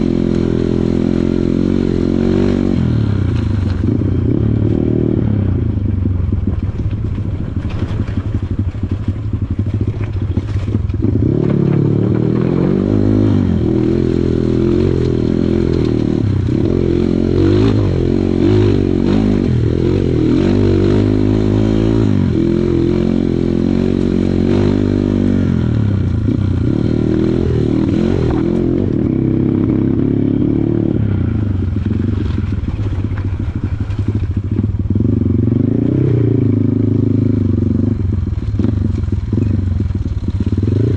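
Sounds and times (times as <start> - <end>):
motorcycle engine revving: 0.0 - 40.9
rattling and scraping: 6.0 - 13.1, 31.3 - 34.9.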